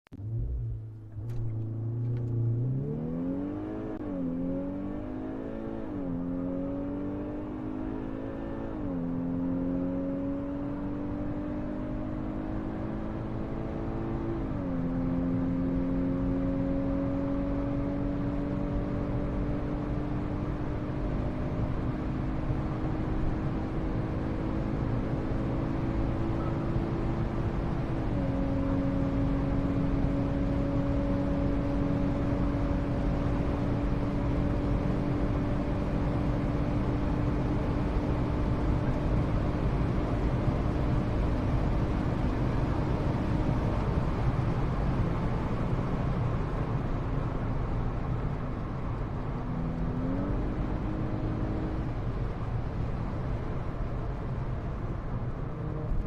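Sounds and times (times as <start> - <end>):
car engine accelerating: 0.1 - 56.0.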